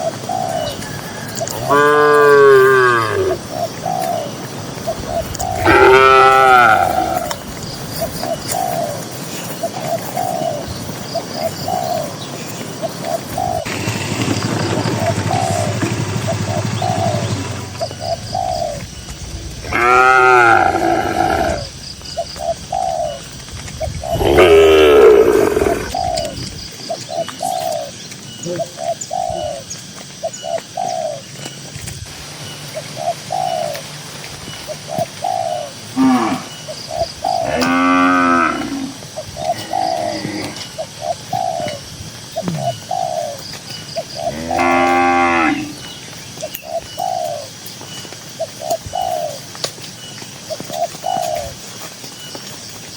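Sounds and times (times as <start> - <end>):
bird cooing: 0.0 - 31.5, 32.4 - 47.6, 48.4 - 49.5, 50.5 - 51.6
cows mooing: 1.6 - 3.4, 5.3 - 7.4, 17.0 - 21.7, 24.2 - 26.0, 35.9 - 36.6, 37.4 - 40.8, 44.3 - 45.9.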